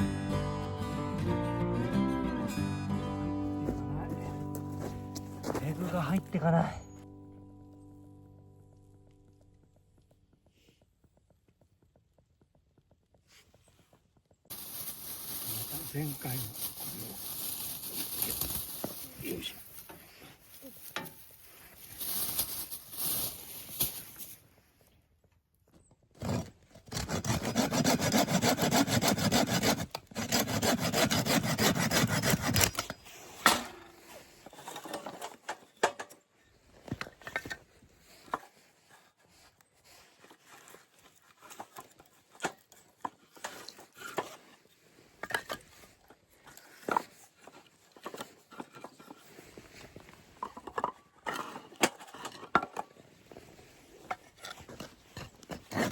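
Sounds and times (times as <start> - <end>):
hand saw cutting wood: 26.2 - 35.2, 40.2 - 45.6, 54.1 - 55.9.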